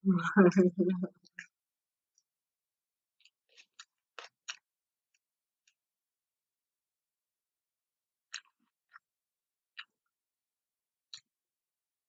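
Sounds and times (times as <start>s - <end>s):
mouth chewing food: 3.2s - 4.7s.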